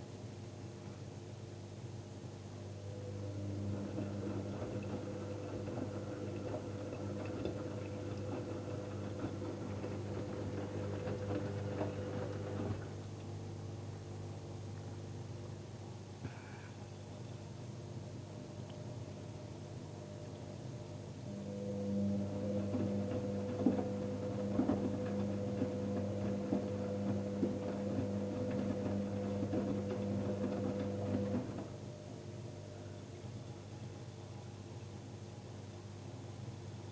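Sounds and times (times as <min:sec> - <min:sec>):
washing machine motor hum: 0:02.5 - 0:16.1, 0:17.1 - 0:33.7.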